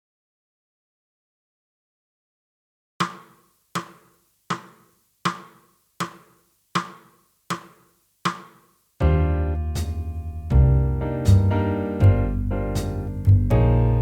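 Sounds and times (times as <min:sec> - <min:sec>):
sharp percussive clicks: 0:03.0 - 0:08.6.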